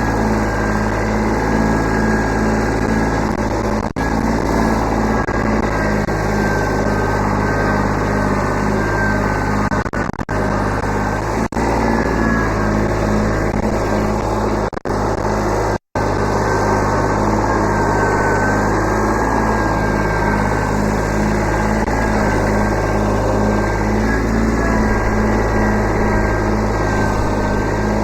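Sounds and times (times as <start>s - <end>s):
tractor diesel engine running: 0.0s - 28.0s
thin high whine: 16.4s - 28.0s.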